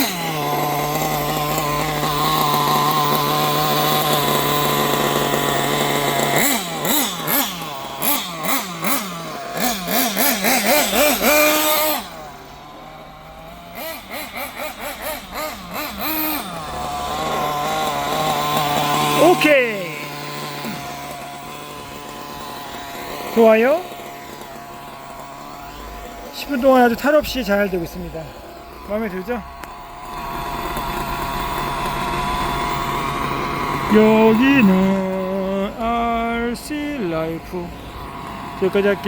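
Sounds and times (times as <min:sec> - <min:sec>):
rc buggy engine idling and revving: 0:00.0 - 0:39.0.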